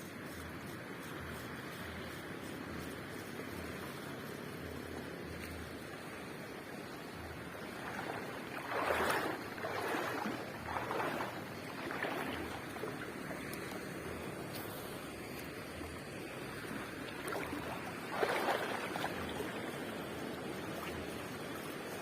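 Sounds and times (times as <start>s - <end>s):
sea waves washing on beach: 0.0s - 22.0s
wave breaking on shore: 7.6s - 13.7s, 16.9s - 19.7s.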